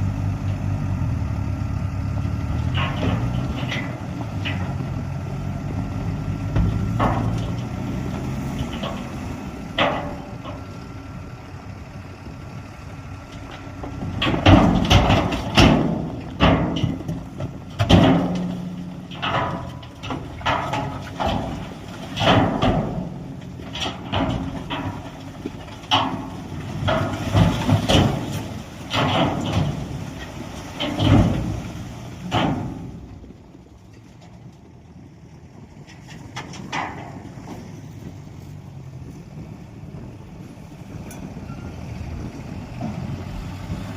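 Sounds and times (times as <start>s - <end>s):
diesel machinery running: 0.0s - 43.9s
metal clanking on rock: 2.6s - 5.2s, 6.5s - 10.9s, 13.4s - 33.3s, 35.9s - 37.7s.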